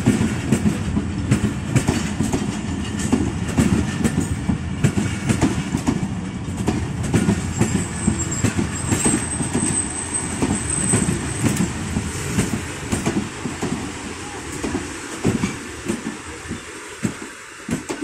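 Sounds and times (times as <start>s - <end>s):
train rumble and wheel clatter: 0.0s - 18.0s
high wheel squeal on rails: 2.0s - 4.4s, 7.1s - 13.0s.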